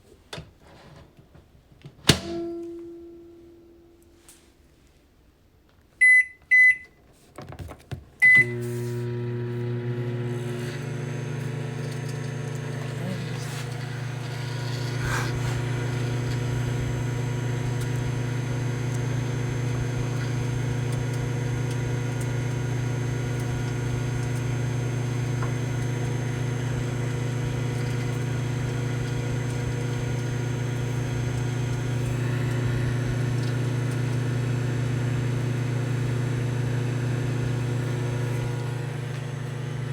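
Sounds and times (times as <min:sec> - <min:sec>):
microwave keypad beeping: 0:06.0 - 0:07.0, 0:08.2 - 0:08.6
microwave oven humming: 0:08.2 - 0:39.9.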